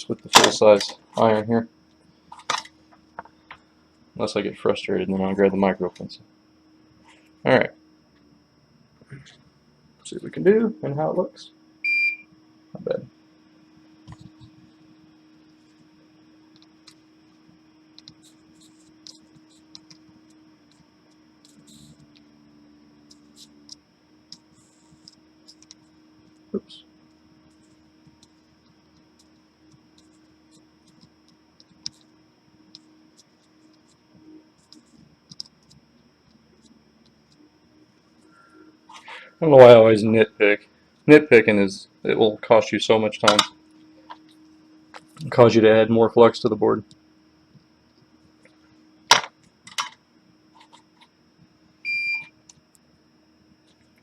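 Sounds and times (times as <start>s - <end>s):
low steady hum: 0.0s - 54.0s
soldering tools tapping circuit board: 27.0s - 37.4s.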